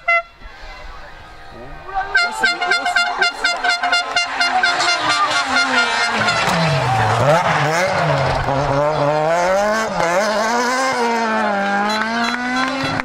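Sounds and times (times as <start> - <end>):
rally car engine revving hard: 3.5 - 13.0.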